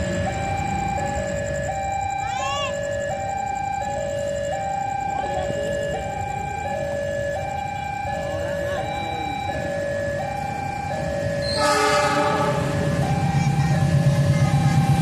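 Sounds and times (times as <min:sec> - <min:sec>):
level crossing two-tone alarm: 0:00.0 - 0:15.0
locomotive low rumble: 0:00.0 - 0:15.0
locomotive horn blasting: 0:11.4 - 0:12.8.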